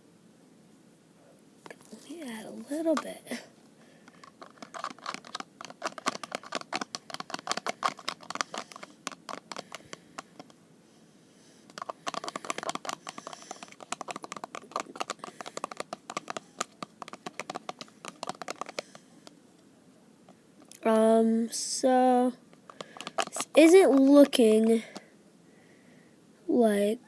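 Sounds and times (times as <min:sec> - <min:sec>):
utensil scraping in a container: 0:04.1 - 0:10.5, 0:11.6 - 0:19.1, 0:22.6 - 0:25.0.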